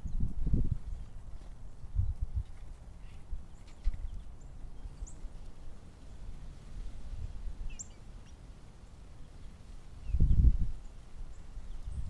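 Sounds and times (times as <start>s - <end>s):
high bird chirps: 7.7s - 8.4s.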